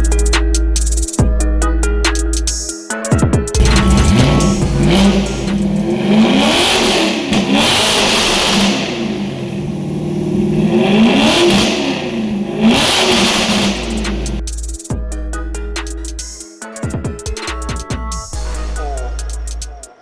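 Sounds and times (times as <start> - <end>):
car engine revving: 3.6 - 14.4.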